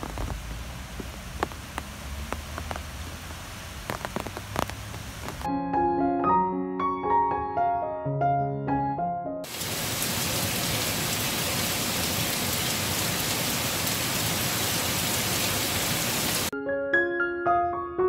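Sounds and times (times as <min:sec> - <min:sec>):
rain hiss: 0:00.0 - 0:05.5, 0:09.5 - 0:16.5.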